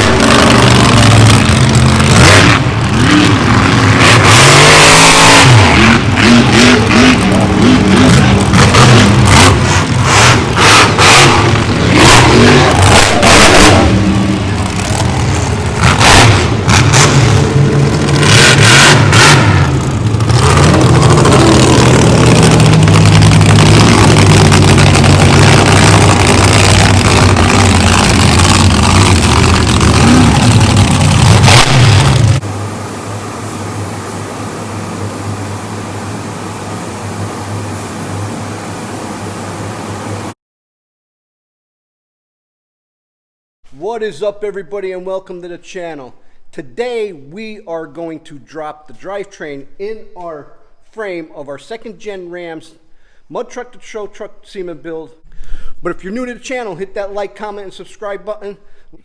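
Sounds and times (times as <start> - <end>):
engine revving hard: 0.0 - 40.3
sharp bursts of noise: 0.0 - 40.4.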